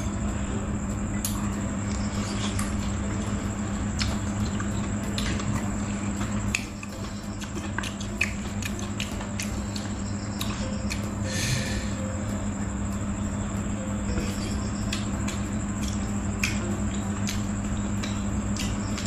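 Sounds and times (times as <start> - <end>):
steady low hum: 0.0 - 19.0
person chewing food: 4.0 - 11.6, 14.1 - 19.0
wet mouth clicks and smacks: 7.4 - 11.0.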